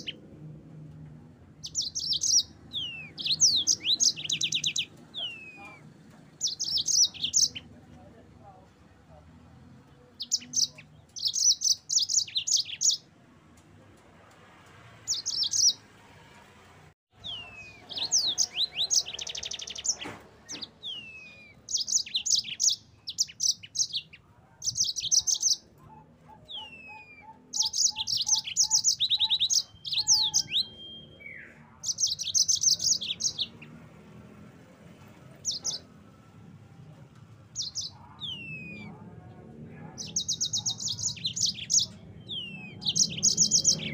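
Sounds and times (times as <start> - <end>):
canary singing trills and whistles: 1.6 - 7.7, 10.1 - 13.1, 15.0 - 15.8, 17.2 - 33.7, 35.4 - 35.9, 37.5 - 39.0, 39.8 - 43.9.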